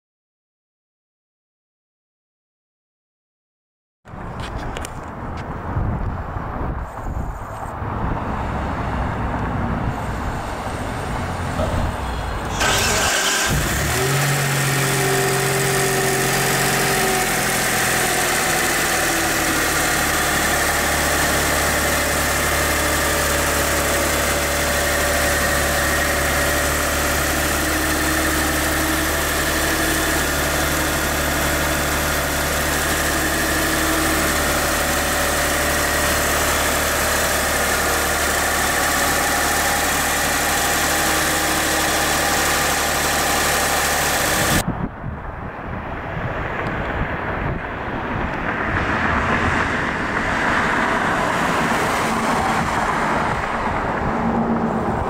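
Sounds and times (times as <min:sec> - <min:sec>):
wind: 0:04.0 - 0:55.0
road noise: 0:04.1 - 0:55.0
car engine idling: 0:10.4 - 0:44.6.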